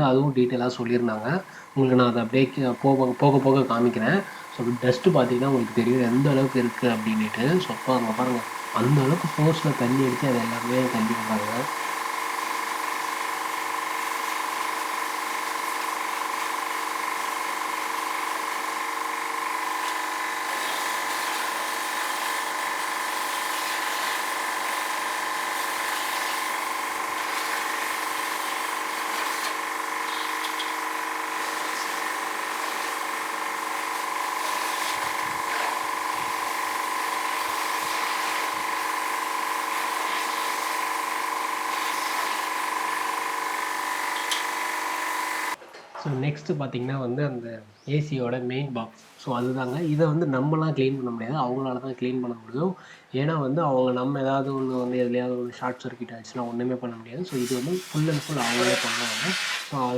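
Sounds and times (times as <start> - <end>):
pressure washer pump whining: 0.0 - 45.6, 57.3 - 59.9
water jet hissing: 0.5 - 45.6, 57.3 - 59.9.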